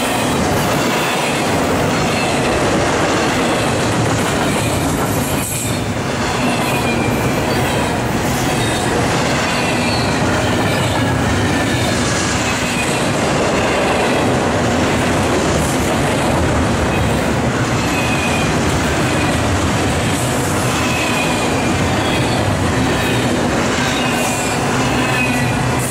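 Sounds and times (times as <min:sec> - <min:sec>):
steel wheels rolling on rail: 0:00.0 - 0:25.9
high wheel squeals: 0:23.9 - 0:25.6.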